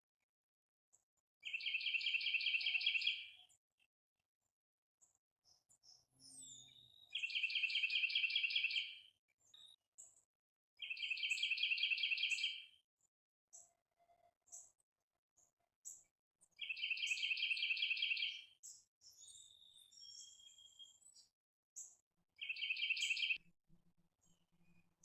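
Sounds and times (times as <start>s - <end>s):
songbird trilling: 10.8s - 12.6s, 16.6s - 18.4s, 22.4s - 23.4s.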